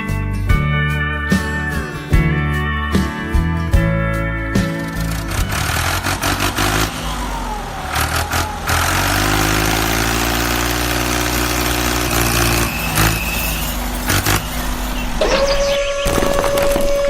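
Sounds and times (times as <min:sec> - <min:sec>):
vehicle engine running: 0:03.8 - 0:17.0.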